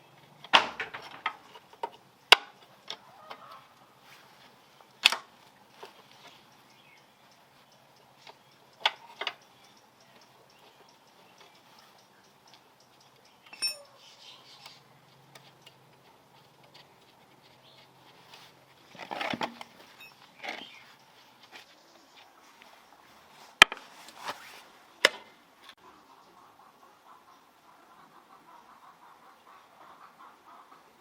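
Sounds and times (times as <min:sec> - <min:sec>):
sharp clicks and knocks: 0:00.2 - 0:03.6
metallic ring: 0:13.5 - 0:14.1.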